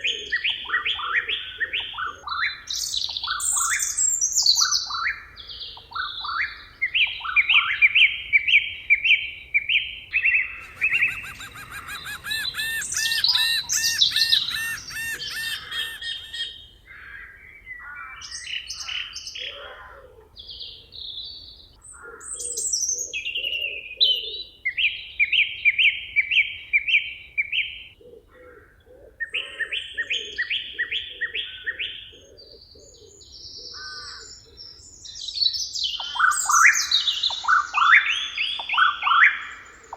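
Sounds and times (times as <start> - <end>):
songbirds chirping: 0.0 - 39.9
low pulsing bird call: 10.2 - 17.2
dense rapid bird trill: 10.4 - 16.6.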